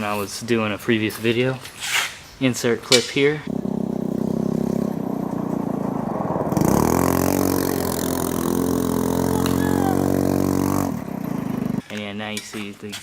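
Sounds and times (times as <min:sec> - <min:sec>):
go-kart engine idling and revving: 0:03.4 - 0:11.8.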